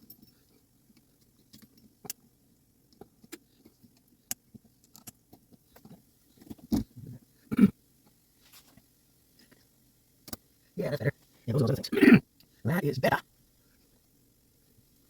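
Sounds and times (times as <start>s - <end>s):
small metallic clicks and taps: 0.0s - 2.3s, 2.9s - 6.8s, 8.8s - 10.5s.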